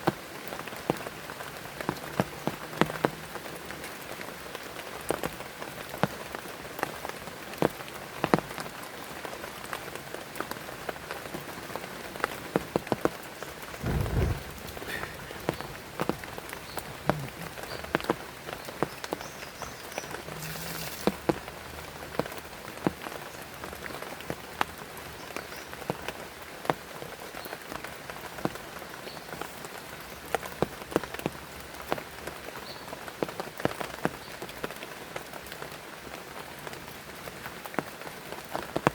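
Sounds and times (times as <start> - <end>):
heavy rain: 0.0 - 38.9
raindrops tapping close by: 0.0 - 38.9
short low thump: 13.8 - 16.2.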